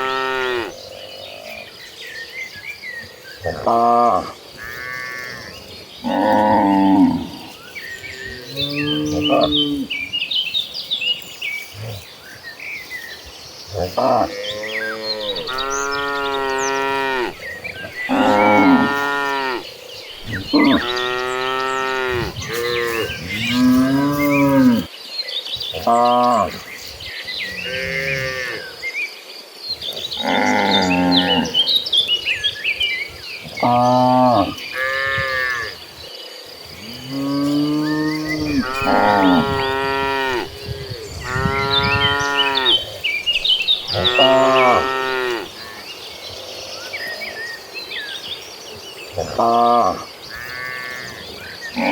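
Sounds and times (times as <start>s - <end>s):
cattle mooing: 0.0s - 0.7s, 13.8s - 17.4s, 18.0s - 19.6s, 20.2s - 24.9s, 37.1s - 42.8s, 43.8s - 45.5s.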